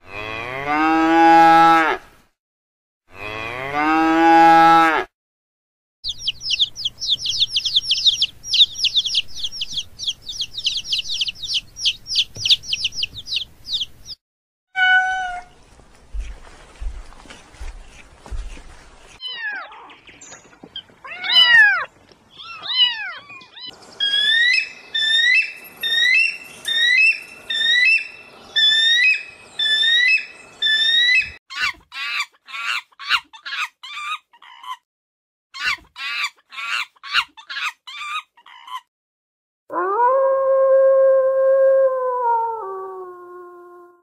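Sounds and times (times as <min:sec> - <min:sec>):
high hawk calls: 0:06.1 - 0:14.2, 0:24.0 - 0:33.6
cat meowing: 0:14.8 - 0:15.5, 0:19.2 - 0:20.0, 0:21.0 - 0:23.7.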